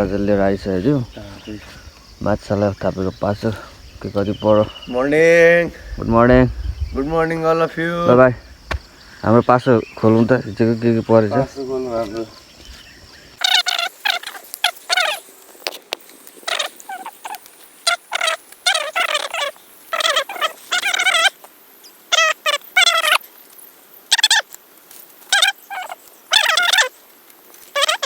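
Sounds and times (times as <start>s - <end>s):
bird warbling calls: 0.0s - 15.2s, 16.4s - 21.4s, 25.3s - 27.0s.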